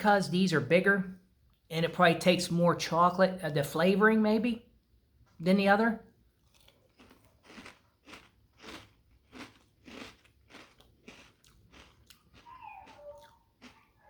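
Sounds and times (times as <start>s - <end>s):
chewing crunchy cereal: 6.2s - 14.0s.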